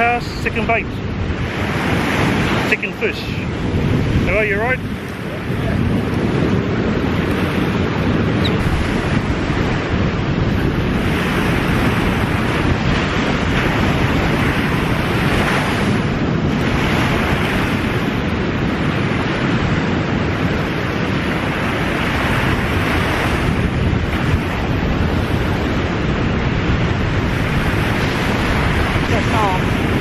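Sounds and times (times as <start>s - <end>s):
surf washing onto beach: 0.0s - 30.0s
wind buffeting microphone: 0.0s - 30.0s.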